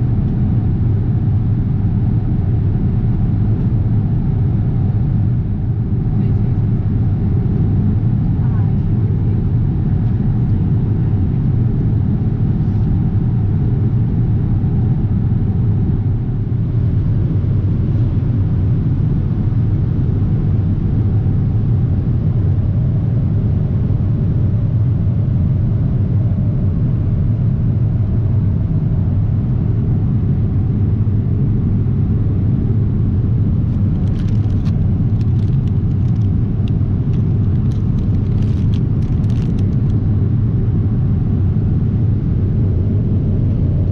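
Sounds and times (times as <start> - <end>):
airplane engines humming: 0.0 - 43.9
rush of air in cabin: 4.7 - 43.9.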